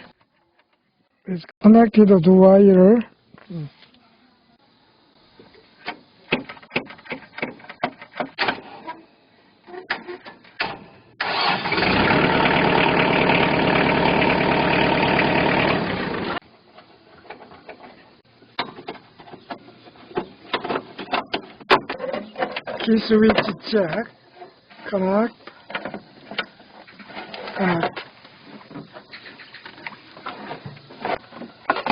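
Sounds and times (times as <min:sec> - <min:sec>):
tractor starter cranking engine: 0:10.6 - 0:16.4.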